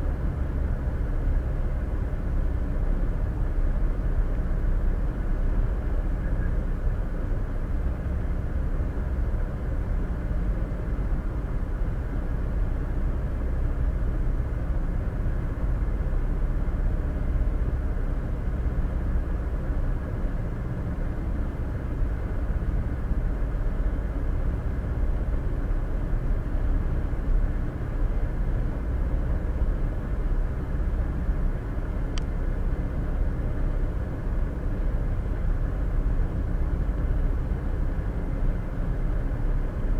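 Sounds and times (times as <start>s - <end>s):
faint short tick: 32.1s - 32.4s.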